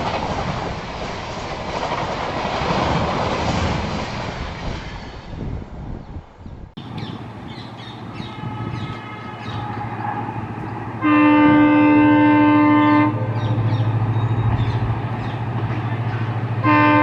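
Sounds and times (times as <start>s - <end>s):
diesel locomotive engine drone: 0.0s - 17.0s
locomotive horn blast: 8.0s - 14.7s, 15.7s - 17.0s.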